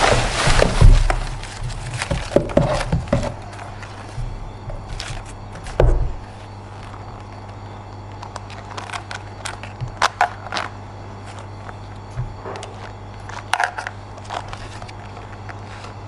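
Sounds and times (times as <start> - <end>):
steady low hum: 0.0 - 16.0
heavy thump: 5.7 - 6.2.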